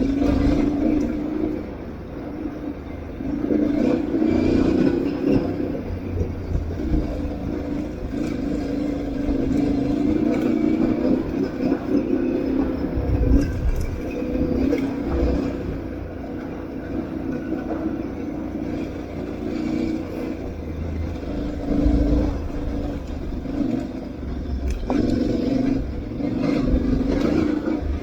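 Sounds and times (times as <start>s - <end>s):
motorcycle engine revving: 0.0s - 28.0s
terrain rumble: 0.0s - 28.0s
wind noise: 5.8s - 16.1s.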